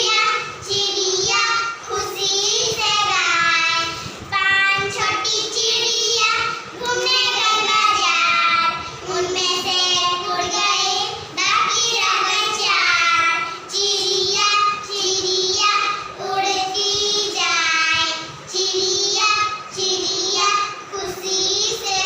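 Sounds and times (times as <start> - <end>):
young children singing: 0.0 - 22.0.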